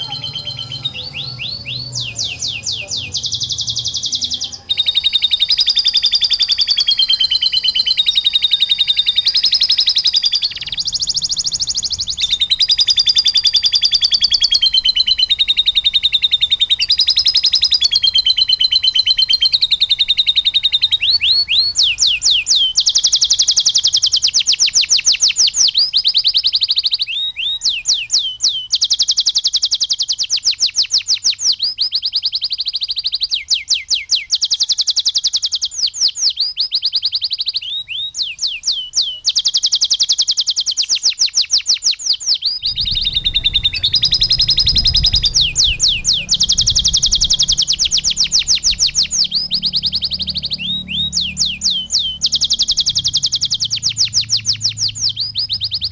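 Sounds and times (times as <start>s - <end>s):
canary singing trills: 0.0s - 55.9s
low rumble: 42.6s - 53.4s.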